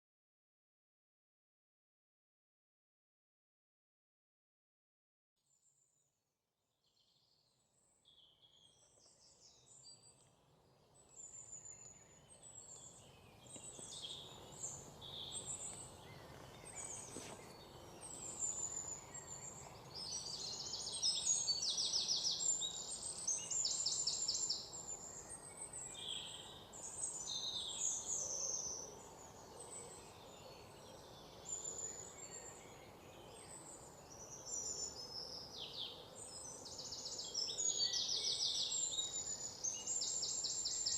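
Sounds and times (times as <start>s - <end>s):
birds chirping and singing: 10.9s - 40.9s.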